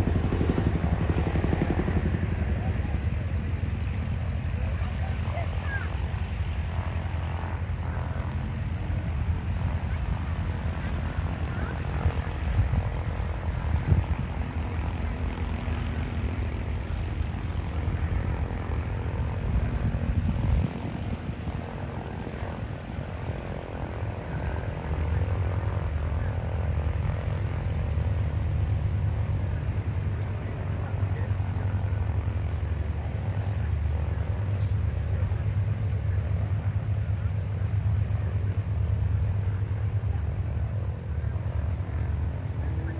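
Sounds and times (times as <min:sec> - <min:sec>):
propeller aircraft engines droning: 0:00.0 - 0:42.9.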